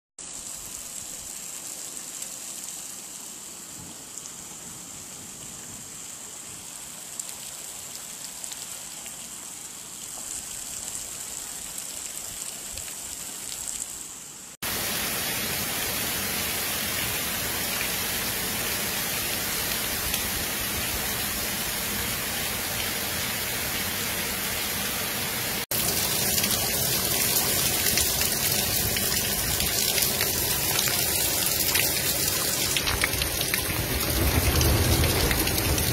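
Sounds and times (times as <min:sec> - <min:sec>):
heavy rain: 0:00.2 - 0:35.9
rushing floodwater: 0:14.6 - 0:35.9.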